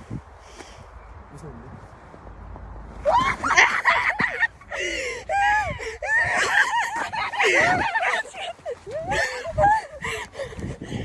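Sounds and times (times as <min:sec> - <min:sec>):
girls shrieking and laughing: 0:03.0 - 0:10.6.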